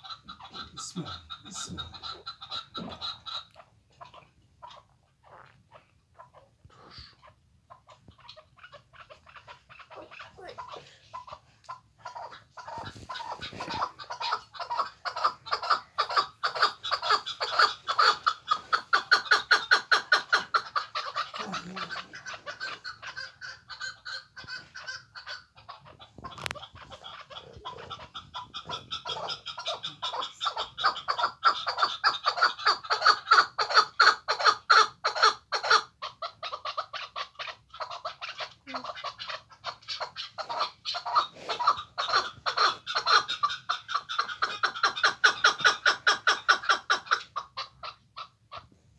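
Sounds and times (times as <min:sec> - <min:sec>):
partridge clucking call: 0:12.0 - 0:48.3.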